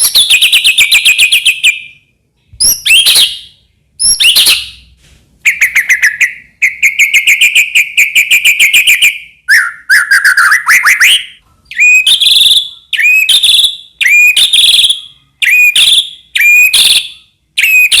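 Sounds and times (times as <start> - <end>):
songbird singing: 5.5 - 18.0.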